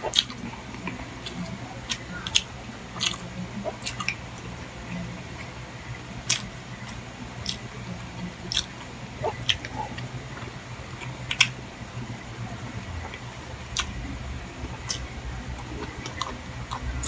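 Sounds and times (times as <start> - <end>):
chewing and mouth noises: 0.0 - 5.6, 6.2 - 11.6, 12.7 - 17.0
low hum: 0.0 - 17.0
wet clicks and smacks: 10.4 - 11.6.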